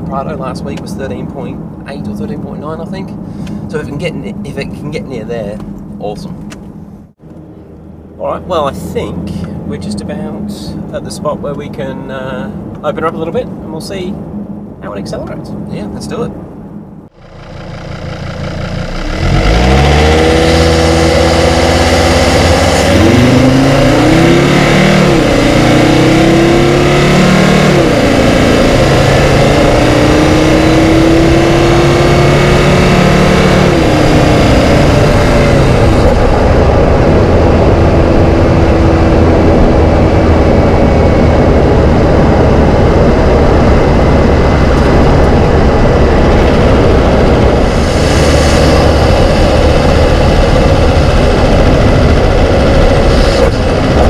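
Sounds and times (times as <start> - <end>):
road noise: 0.0 - 54.0
car engine accelerating: 16.5 - 54.0.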